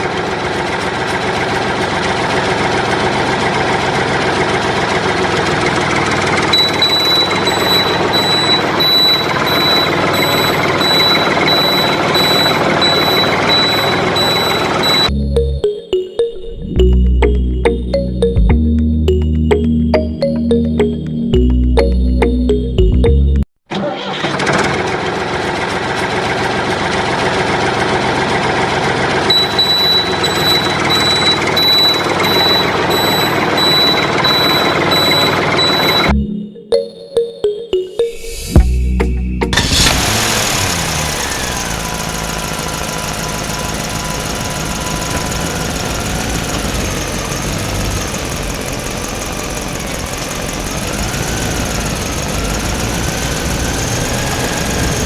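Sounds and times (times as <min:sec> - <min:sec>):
loud mechanical running noise: 0:00.0 - 0:15.1, 0:24.1 - 0:36.1, 0:39.5 - 0:55.0
reversing alarm beeping: 0:06.4 - 0:23.4, 0:29.3 - 0:55.0.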